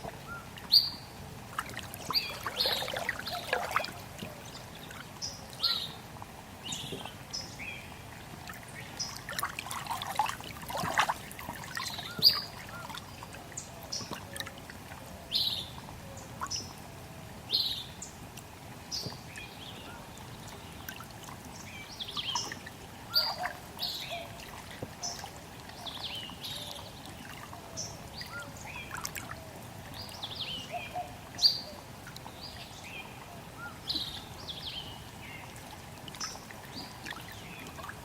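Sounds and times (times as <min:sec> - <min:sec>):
water trickling: 0:00.0 - 0:38.0
splashing: 0:01.5 - 0:04.4, 0:08.5 - 0:13.0.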